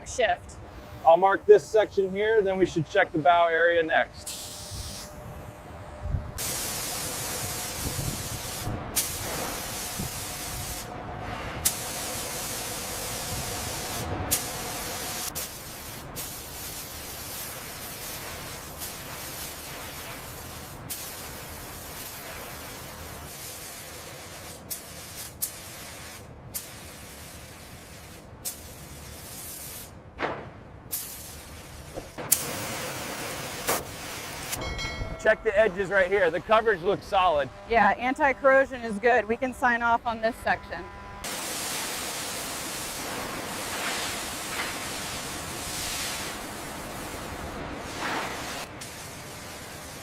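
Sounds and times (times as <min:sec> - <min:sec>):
spray gun hissing: 0:04.2 - 0:05.2, 0:06.4 - 0:29.9, 0:30.9 - 0:34.6, 0:41.2 - 0:50.0.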